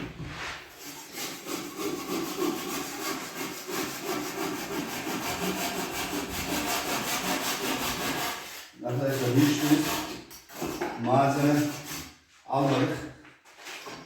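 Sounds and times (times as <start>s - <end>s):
hand saw cutting: 0.7s - 12.2s.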